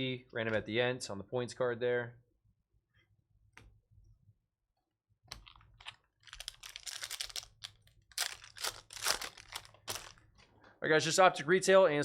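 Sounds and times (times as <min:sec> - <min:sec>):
foil wrapper crinkling: 0:06.2 - 0:10.2.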